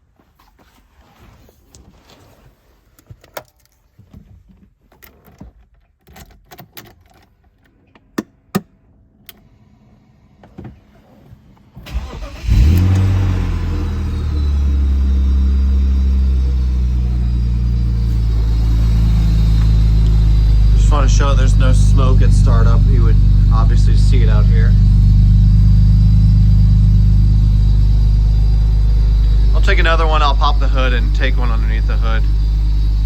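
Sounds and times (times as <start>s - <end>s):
car engine cranking and idling: 11.8s - 33.0s.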